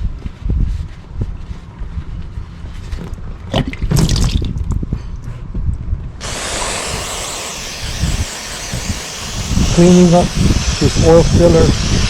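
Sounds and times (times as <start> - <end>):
steady hiss: 6.2 - 12.0.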